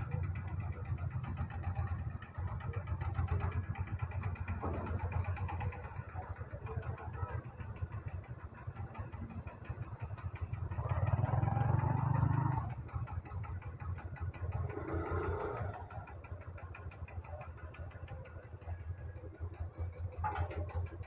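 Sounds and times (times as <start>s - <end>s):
motorcycle engine idling: 0.0s - 21.0s
another engine revving: 14.7s - 15.8s.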